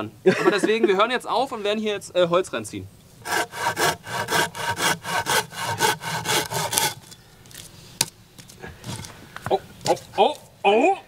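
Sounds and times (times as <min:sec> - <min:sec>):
hand saw cutting wood: 0:03.2 - 0:07.2, 0:08.8 - 0:09.1.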